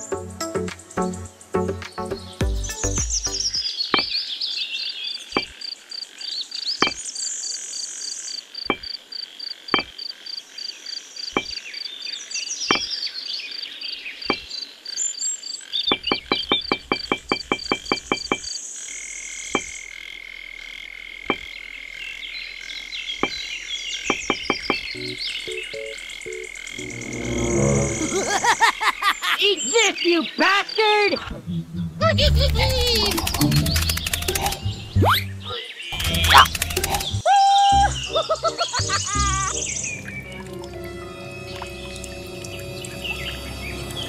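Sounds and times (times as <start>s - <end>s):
bird calls: 2.1s - 9.0s, 9.7s - 20.0s, 21.2s - 26.9s, 28.0s - 37.2s
insects chirping: 3.6s - 31.0s, 32.8s - 34.9s
insect drone: 17.4s - 24.1s, 24.9s - 29.4s, 40.5s - 44.0s.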